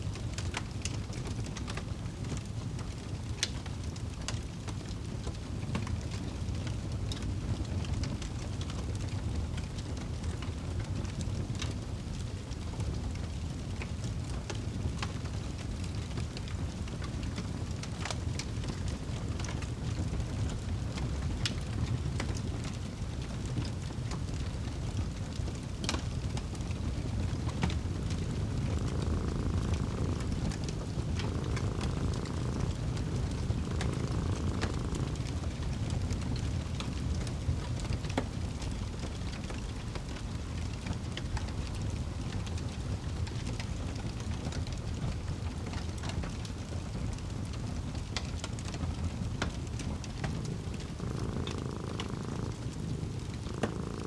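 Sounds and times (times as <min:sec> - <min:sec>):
fireplace crackling and popping: 0:00.1 - 0:54.0
cat purring: 0:05.0 - 0:54.0.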